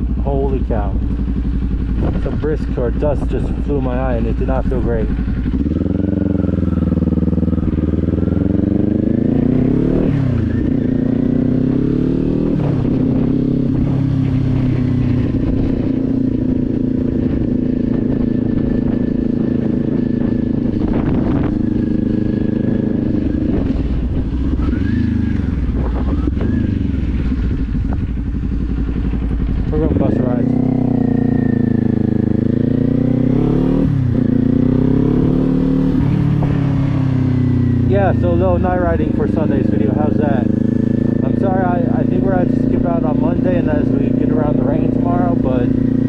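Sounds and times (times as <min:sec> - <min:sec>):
motorcycle engine accelerating: 0:00.0 - 0:46.0
wind noise on microphone: 0:00.7 - 0:09.3, 0:10.0 - 0:32.7.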